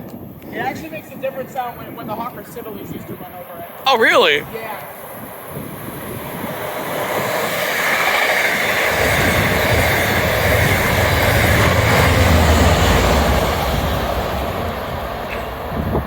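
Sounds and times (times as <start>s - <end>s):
train wheels rushing on rail: 5.1s - 16.0s.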